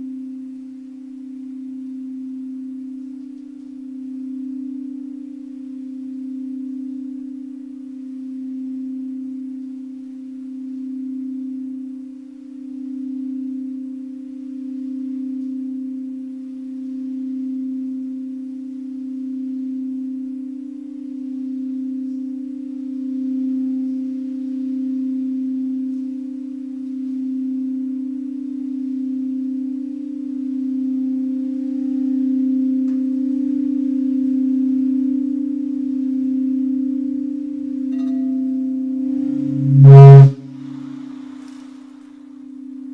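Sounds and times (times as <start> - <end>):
singing bowl low tone: 33.9 - 40.8.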